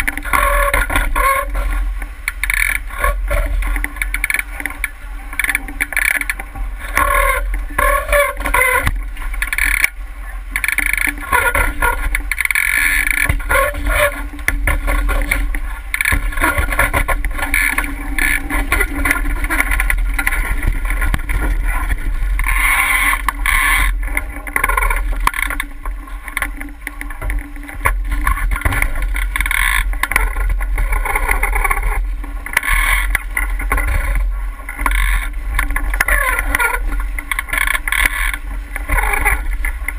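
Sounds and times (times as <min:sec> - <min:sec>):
water washing along hull: 0:00.0 - 0:39.9
wind rumbling on microphone: 0:00.0 - 0:39.9.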